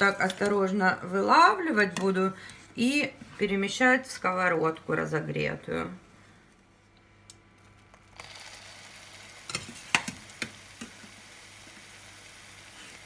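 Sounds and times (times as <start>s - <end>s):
oil sizzling in a frying pan: 8.2s - 13.0s.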